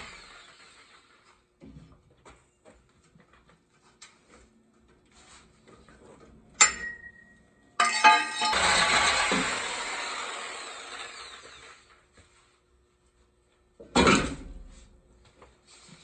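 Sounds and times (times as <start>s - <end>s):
power tool cutting pipe: 0.0s - 1.1s, 8.5s - 11.9s
metallic clank: 6.6s - 8.6s
hand tools tapping metal: 7.8s - 8.7s.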